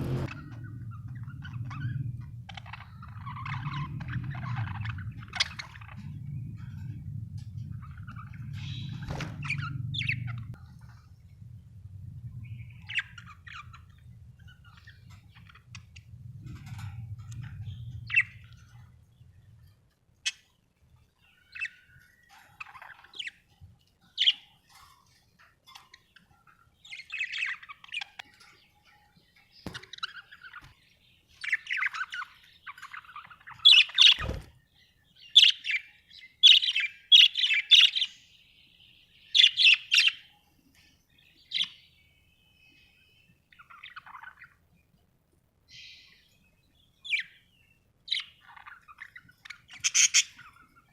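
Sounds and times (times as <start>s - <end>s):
budgerigars chirping and chattering: 0.0s - 11.1s, 12.4s - 40.4s, 41.1s - 42.1s, 43.4s - 44.7s, 45.7s - 50.9s
low steady hum: 0.0s - 35.2s.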